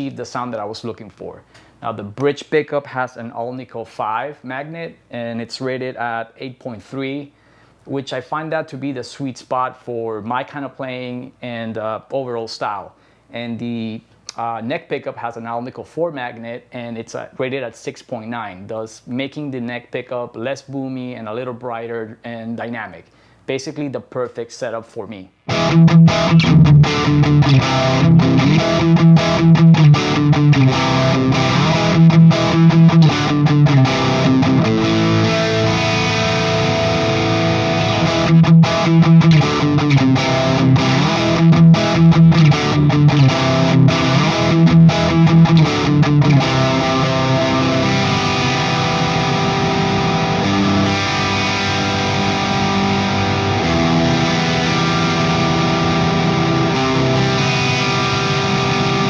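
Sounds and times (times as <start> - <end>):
distorted electric guitar: 25.5 - 59.0.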